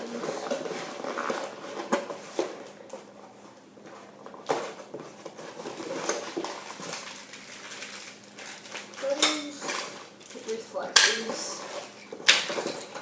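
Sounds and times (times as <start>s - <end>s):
packaging rustling: 0.0s - 3.3s, 3.9s - 10.5s.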